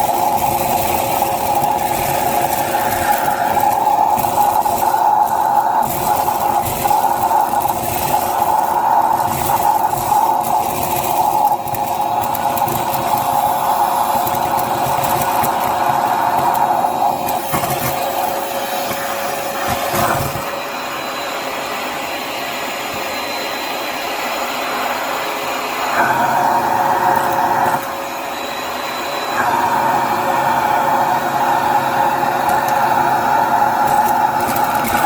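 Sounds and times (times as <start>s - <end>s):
beads crackling through vacuum: 0.0s - 20.6s, 32.3s - 35.0s
vacuum motor running: 0.0s - 35.0s.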